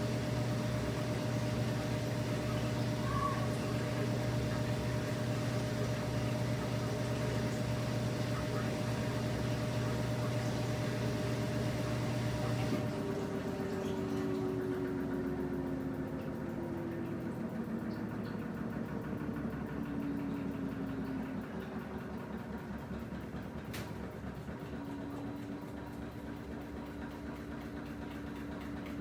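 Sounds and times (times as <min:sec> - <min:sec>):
washing machine churning: 0:00.0 - 0:29.0
machine tone: 0:02.4 - 0:04.3.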